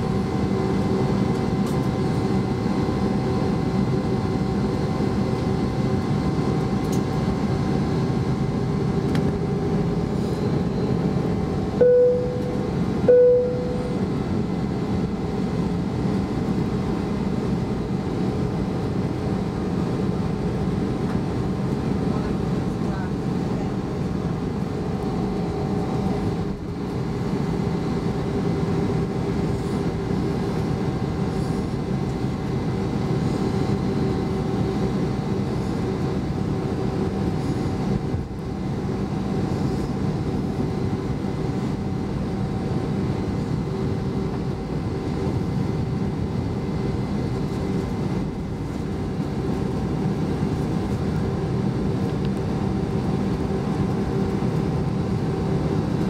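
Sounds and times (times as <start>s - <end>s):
airplane cabin engine rumble: 0.0s - 56.0s
steady hums: 11.8s - 16.6s.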